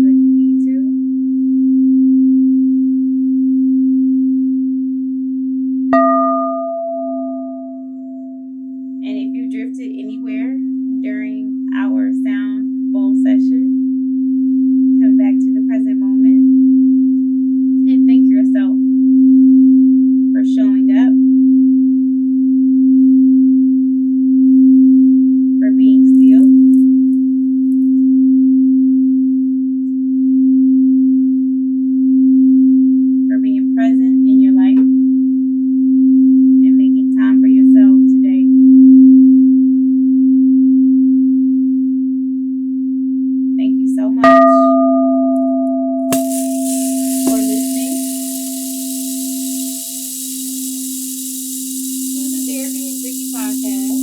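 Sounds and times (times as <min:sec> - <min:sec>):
singing bowl tone: 0:06.0 - 0:09.0, 0:44.2 - 0:54.0.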